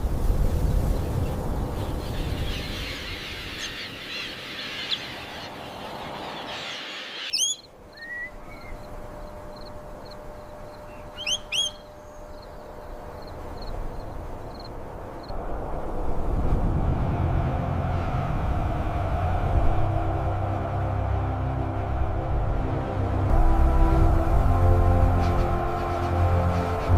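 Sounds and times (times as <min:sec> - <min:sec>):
birds chirping: 0:01.1 - 0:14.7
rising bird whistle: 0:06.8 - 0:09.0, 0:09.6 - 0:12.6.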